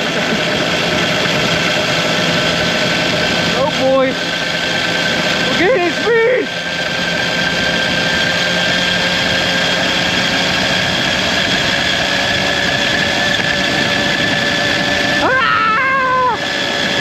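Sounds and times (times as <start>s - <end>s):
steady whine: 0.0s - 17.0s
wind rushing over microphone: 6.8s - 17.0s.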